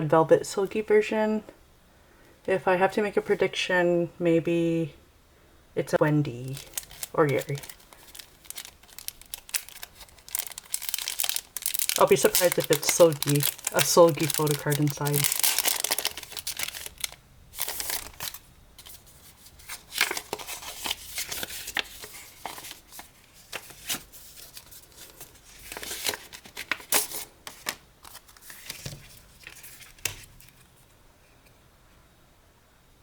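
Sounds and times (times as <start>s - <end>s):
paper rustling and tearing: 6.5s - 30.7s.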